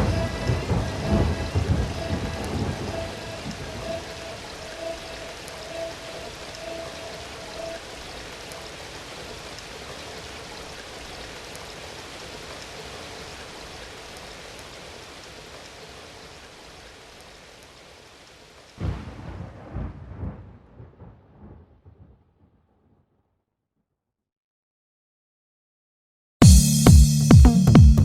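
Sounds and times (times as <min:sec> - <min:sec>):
low thunder rumble: 0:00.0 - 0:08.4, 0:18.8 - 0:22.2
steady rain falling: 0:00.0 - 0:22.0.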